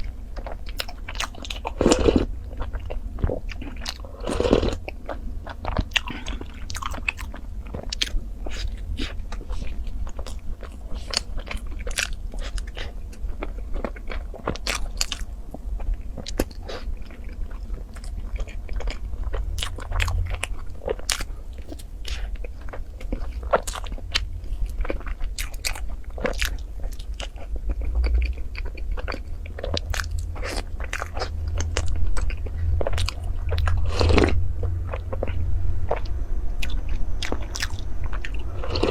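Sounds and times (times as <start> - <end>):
low hum: 0.0 - 38.9
person chewing food: 0.0 - 38.9.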